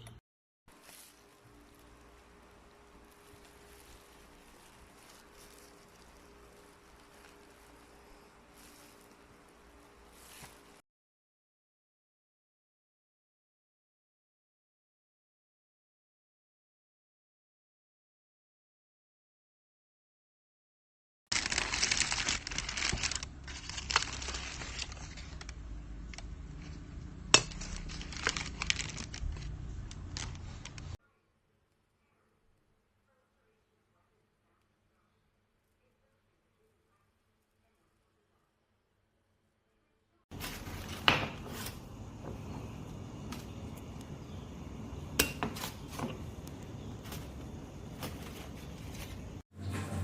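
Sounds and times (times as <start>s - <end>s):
packaging crinkling: 0.7s - 10.8s, 21.3s - 31.0s, 40.3s - 44.5s, 45.6s - 49.4s
steady low hum: 40.4s - 50.0s.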